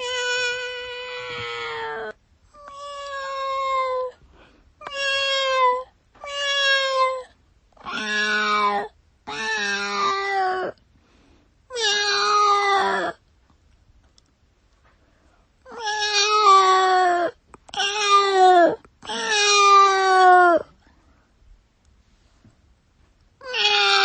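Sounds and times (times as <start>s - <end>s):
cat meowing: 0.0s - 4.2s, 4.8s - 10.8s, 11.7s - 13.2s, 15.7s - 20.7s, 23.4s - 24.0s.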